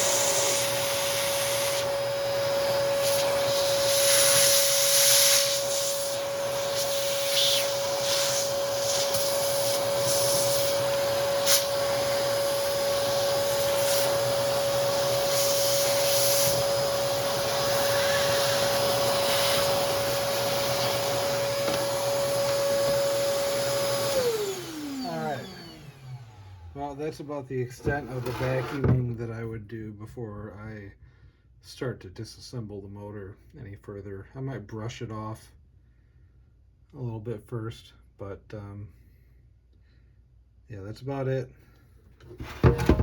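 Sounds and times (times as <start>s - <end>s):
vacuum cleaner running: 0.0s - 29.1s, 42.3s - 43.0s.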